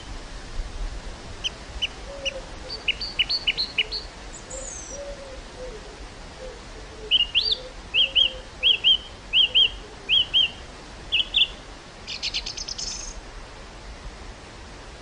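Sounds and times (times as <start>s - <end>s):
wind hush: 0.0s - 15.0s
songbird singing: 1.4s - 13.2s.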